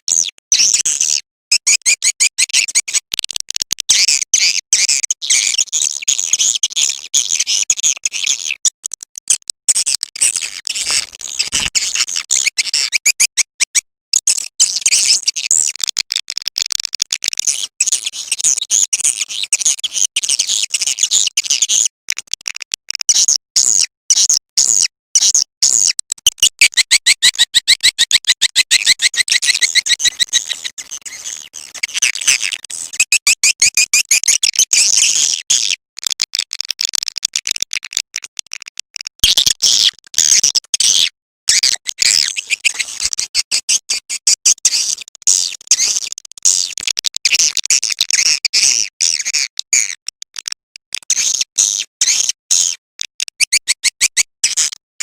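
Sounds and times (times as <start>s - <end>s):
swiftlets chirping and twittering: 26.2s - 35.1s.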